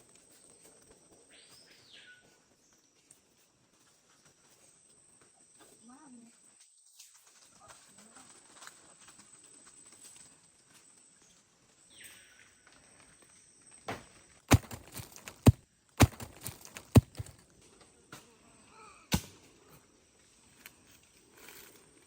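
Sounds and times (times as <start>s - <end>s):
loud sharp knocks: 14.5s - 17.3s.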